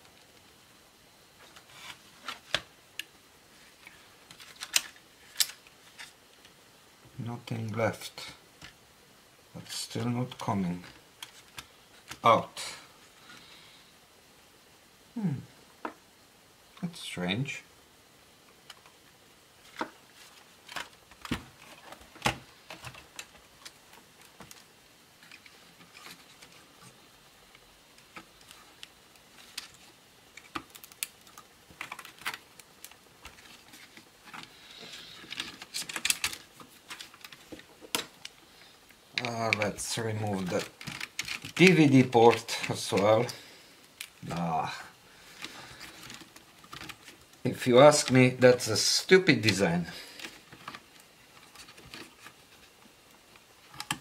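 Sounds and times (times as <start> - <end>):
plastic laptop parts clicking: 4.3 - 6.1, 28.0 - 34.5, 35.2 - 38.4, 40.5 - 41.7, 53.7 - 54.0
hands rubbing plastic: 27.9 - 48.2
tools clicking on laptop parts: 40.6 - 41.6.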